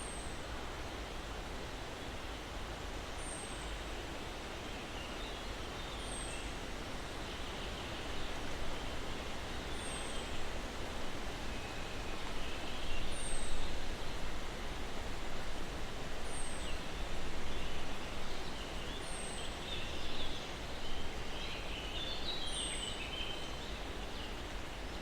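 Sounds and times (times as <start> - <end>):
breeze rustling pine trees: 0.0 - 25.0.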